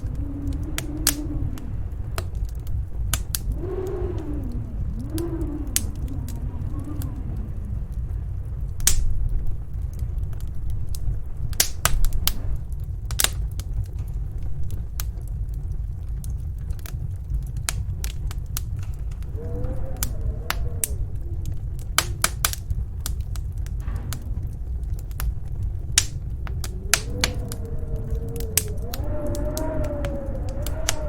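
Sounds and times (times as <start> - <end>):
howling wind gust: 0.0 - 31.0
snowstorm wind rumbling: 0.0 - 31.0
wood fire crackling and popping: 0.0 - 31.0.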